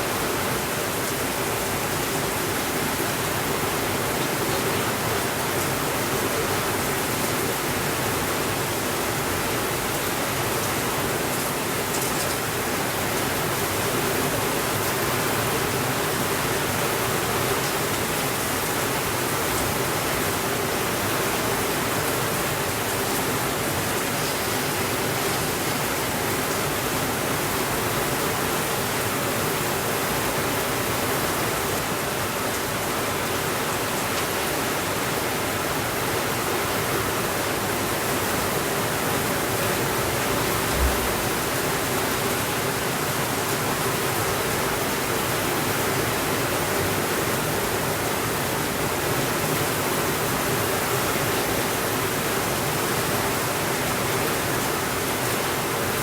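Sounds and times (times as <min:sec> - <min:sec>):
steady rainfall: 0:00.0 - 0:56.0
low thump: 0:40.6 - 0:41.5.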